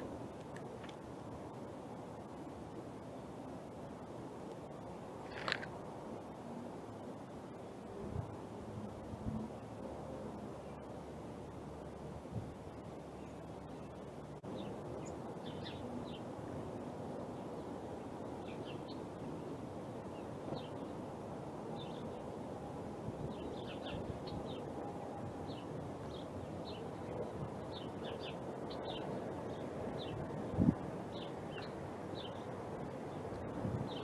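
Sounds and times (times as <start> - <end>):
small songbirds chirping: 12.6 - 16.4, 17.2 - 22.4, 23.2 - 34.0.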